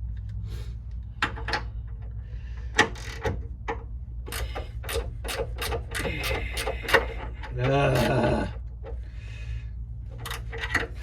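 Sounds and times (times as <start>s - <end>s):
low shop hum: 0.0s - 11.0s
hand ratchet clicking: 2.7s - 8.4s.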